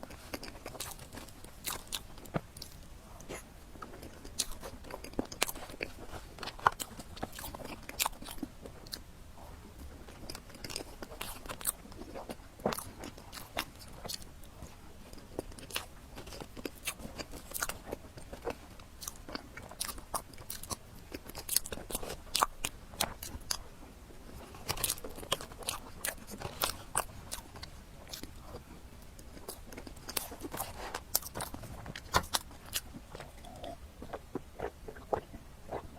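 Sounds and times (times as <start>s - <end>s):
person chewing and crunching food: 0.0s - 35.9s
wet mouth clicks: 32.2s - 35.8s.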